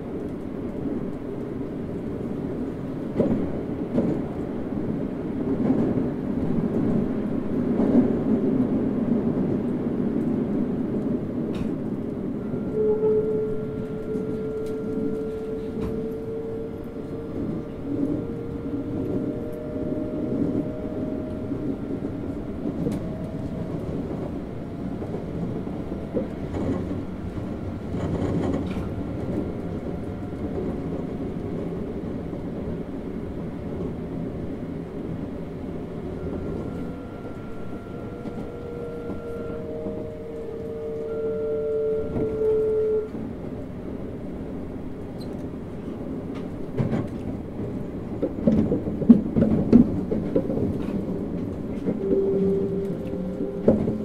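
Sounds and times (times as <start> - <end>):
wheel and rail rumble: 0.0 - 54.0
rail-joint clicks: 11.0 - 32.8, 45.0 - 54.0
train motor whine: 12.3 - 34.0, 34.6 - 43.3, 49.4 - 54.0.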